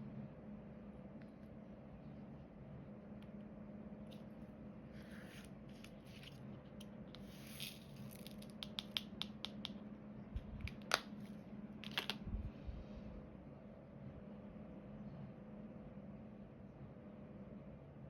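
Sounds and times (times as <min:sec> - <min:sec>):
steady low hum: 0:00.0 - 0:18.0
plastic clicks and taps: 0:08.5 - 0:09.8.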